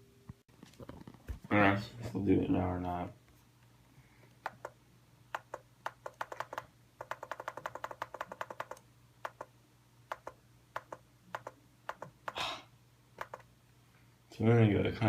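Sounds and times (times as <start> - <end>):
keyboard key clicks: 4.4 - 9.5, 10.1 - 12.4, 13.2 - 13.5.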